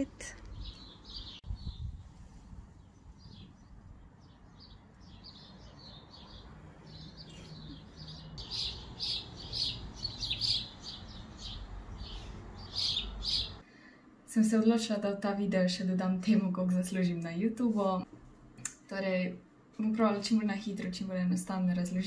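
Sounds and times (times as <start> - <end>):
small birds chirping: 0.0 - 13.6.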